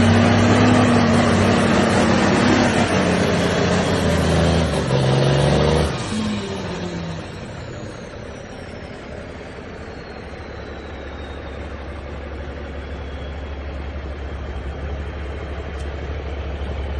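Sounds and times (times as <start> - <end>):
diesel truck engine running: 0.0 - 16.9
faint high whine: 7.2 - 15.0.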